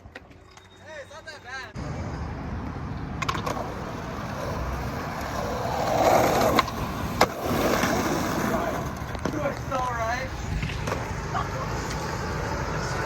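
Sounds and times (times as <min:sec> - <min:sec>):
skateboard wheels rolling on pavement: 0:01.7 - 0:13.0
skateboard clacks: 0:03.2 - 0:13.0.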